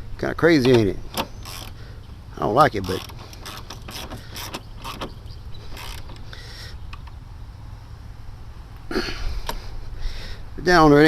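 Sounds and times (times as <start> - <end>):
car battery being fitted by hand: 0.5 - 7.2.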